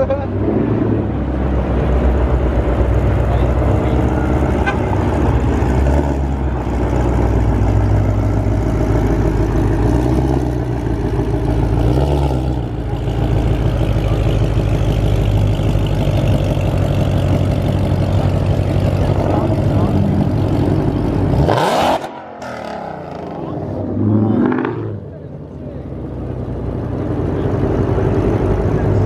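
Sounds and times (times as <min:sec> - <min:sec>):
car engine running: 0:01.1 - 0:29.0.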